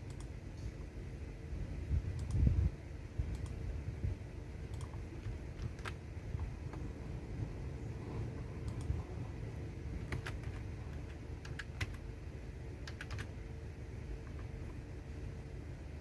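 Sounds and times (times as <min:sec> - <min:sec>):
computer keyboard typing: 0:04.7 - 0:06.9, 0:08.6 - 0:09.0, 0:09.9 - 0:12.1, 0:12.8 - 0:13.4, 0:14.2 - 0:14.8.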